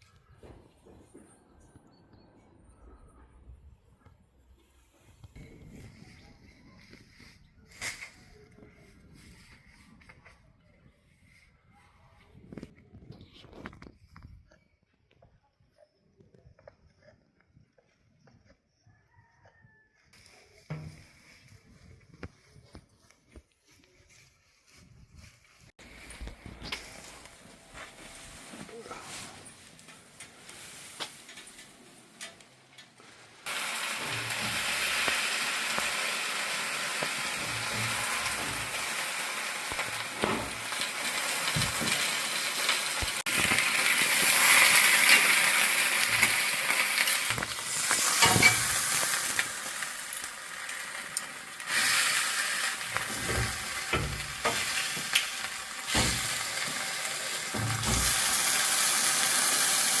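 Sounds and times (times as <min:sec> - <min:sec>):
utensil scraping and knocking a pan: 0:20.7 - 0:21.2, 0:52.7 - 0:56.9
food sizzling in a pan: 0:33.5 - 1:00.0.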